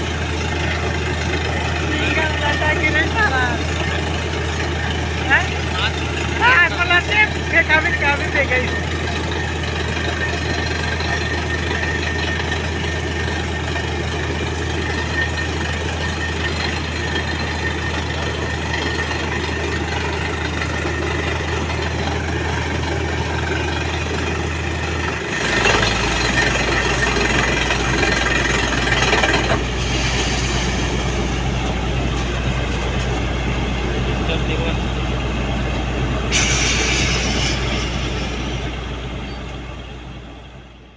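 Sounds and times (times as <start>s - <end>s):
drilling rig diesel engine: 0.0s - 40.9s.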